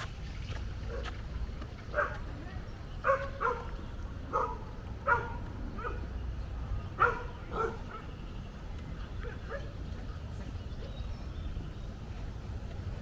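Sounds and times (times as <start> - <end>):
dog barking: 0.9 - 1.2, 1.9 - 2.2, 3.0 - 6.0, 7.0 - 8.1, 9.2 - 9.7.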